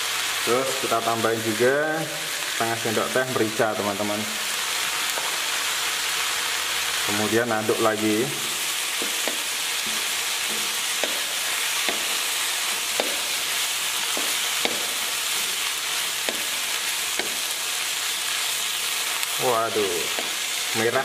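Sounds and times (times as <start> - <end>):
vegetables sizzling in a pan: 0.0 - 21.0
utensil knocking against pan: 9.0 - 11.3, 11.9 - 12.1, 13.0 - 13.3, 14.1 - 15.0, 17.2 - 17.4.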